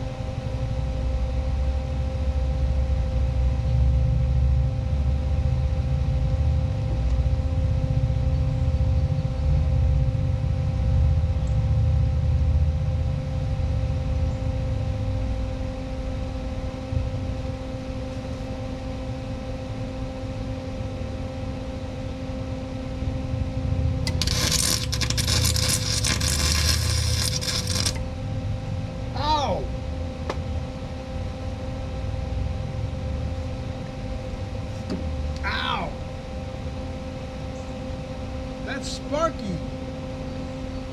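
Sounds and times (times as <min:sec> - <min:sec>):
steady electrical hum: 0:00.0 - 0:40.9
electric welding arc crackling: 0:24.1 - 0:28.0.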